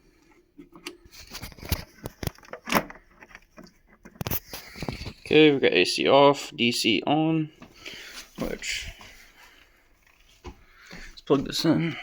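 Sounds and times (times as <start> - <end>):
power cord and plug handled: 0.6 - 5.2.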